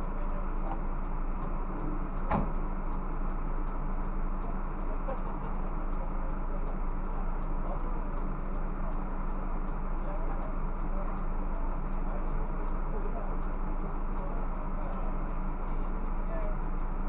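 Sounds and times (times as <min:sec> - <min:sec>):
bus engine and road drone: 0:00.0 - 0:17.0
sharp knock: 0:02.3 - 0:02.6.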